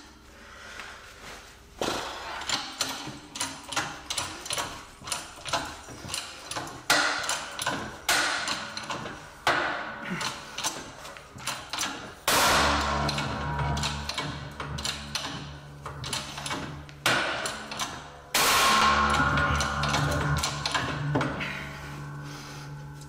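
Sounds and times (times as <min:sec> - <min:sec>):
sharp clicks of hand tools: 0:02.4 - 0:18.1
metallic knocks: 0:02.5 - 0:23.0.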